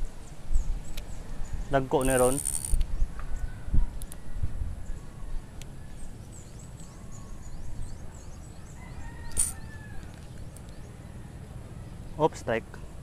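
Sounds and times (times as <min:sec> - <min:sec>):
birds chirping: 0:00.0 - 0:03.6.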